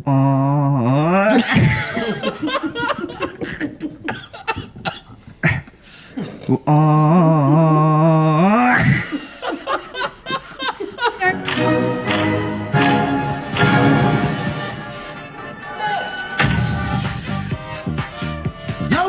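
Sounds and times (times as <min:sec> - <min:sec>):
choppy chuckling: 0:01.3 - 0:11.7.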